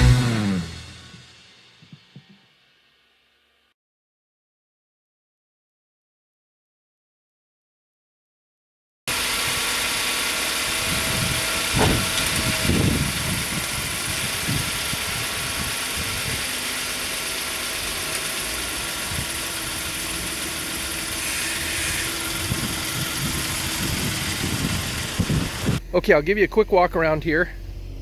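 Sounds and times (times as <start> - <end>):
car engine idling: 9.1 - 28.0
brief louder bumps: 11.7 - 12.9.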